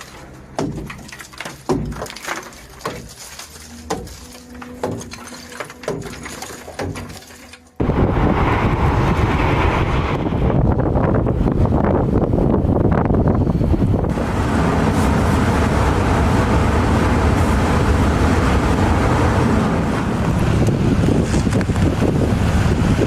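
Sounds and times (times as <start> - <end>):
blows knocking ice: 0.0 - 7.7
sea: 0.0 - 10.6, 13.5 - 23.0
loud wind noise: 7.8 - 23.0.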